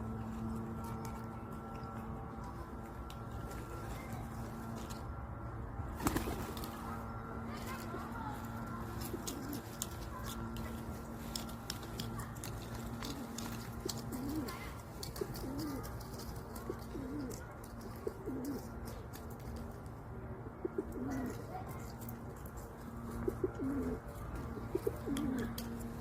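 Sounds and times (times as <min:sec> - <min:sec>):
steady low hum: 0:00.0 - 0:26.0
pigeons cooing: 0:08.8 - 0:10.6, 0:12.7 - 0:19.1, 0:20.4 - 0:21.6, 0:23.1 - 0:26.0.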